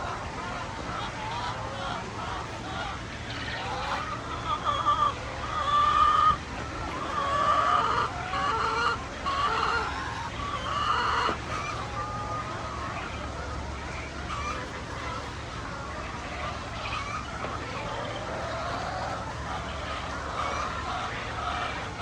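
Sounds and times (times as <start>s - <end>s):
hens clucking and calling: 0.0s - 22.0s
low steady hum: 0.0s - 22.0s.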